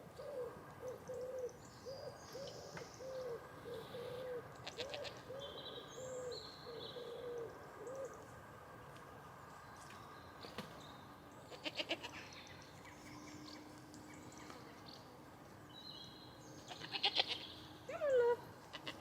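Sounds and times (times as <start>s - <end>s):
goat bleating: 11.5s - 12.2s, 16.7s - 17.4s, 18.7s - 19.0s.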